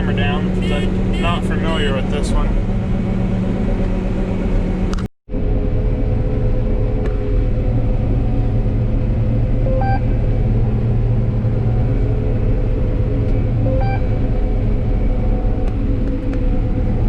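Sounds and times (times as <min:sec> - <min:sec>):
combine engine and machinery rumble: 0:00.0 - 0:17.0
two-note electronic beep: 0:09.6 - 0:10.2, 0:13.6 - 0:14.2.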